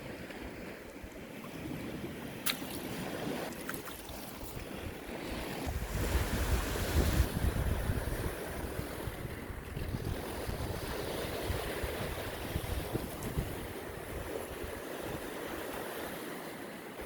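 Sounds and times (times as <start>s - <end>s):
wind buffeting microphone: 4.3s - 15.9s.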